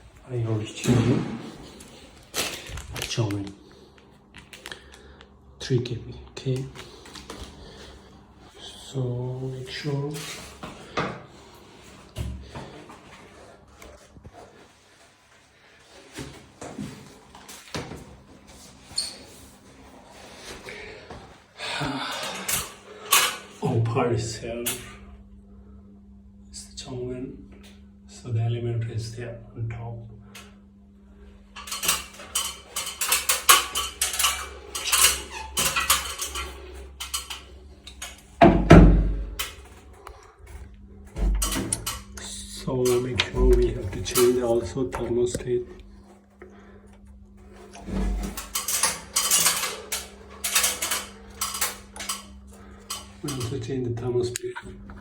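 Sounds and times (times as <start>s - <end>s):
metallic clinks and clatter of tools: 31.6s - 38.1s, 48.2s - 53.6s.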